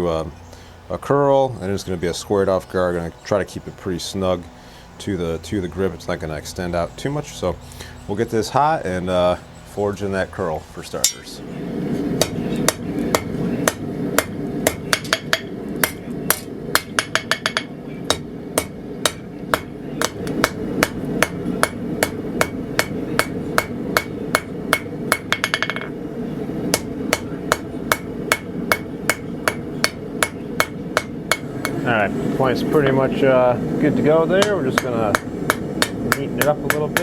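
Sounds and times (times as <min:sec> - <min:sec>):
low background noise: 0:00.0 - 0:37.0
hammer blows on anvil: 0:12.2 - 0:26.0, 0:26.7 - 0:31.8, 0:34.4 - 0:37.0.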